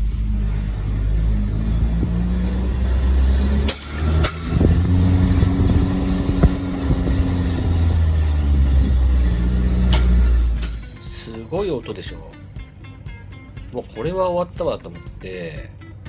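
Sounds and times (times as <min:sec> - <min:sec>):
brake scraping: 0:00.0 - 0:16.0
car rumbling: 0:00.0 - 0:16.0.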